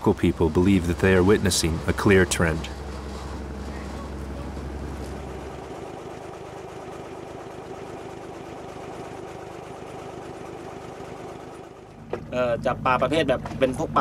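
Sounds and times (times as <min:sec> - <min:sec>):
deep low hum: 0:00.0 - 0:06.6
boat engine idling: 0:00.0 - 0:14.0.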